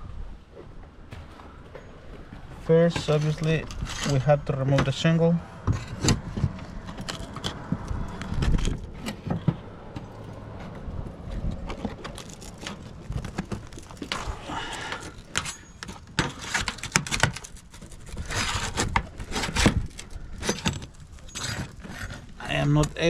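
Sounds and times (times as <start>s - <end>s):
shingle scraping and knocking: 0.9s - 23.0s.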